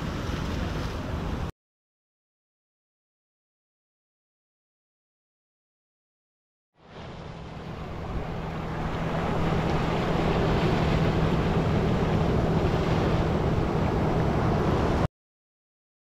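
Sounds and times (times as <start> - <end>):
ocean waves breaking over rocks: 0.0 - 1.5, 6.8 - 15.1
wind on microphone: 6.9 - 15.1.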